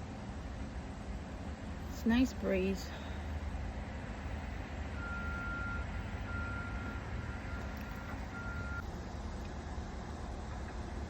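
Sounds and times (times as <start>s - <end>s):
reversing alarm beeping: 5.0s - 8.8s.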